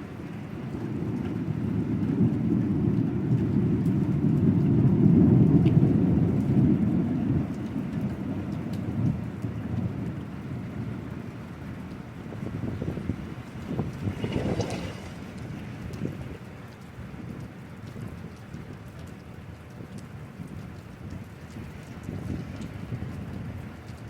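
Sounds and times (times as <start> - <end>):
rain falling: 0.0 - 24.0
thunder rolling: 0.7 - 16.5.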